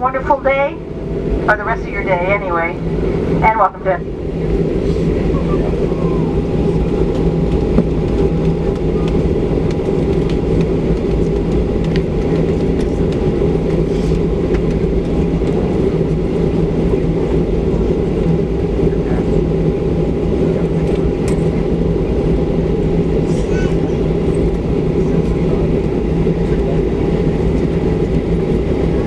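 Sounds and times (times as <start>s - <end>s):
faint steady whine: 0.0s - 10.4s
airplane cabin rumble: 0.0s - 29.0s.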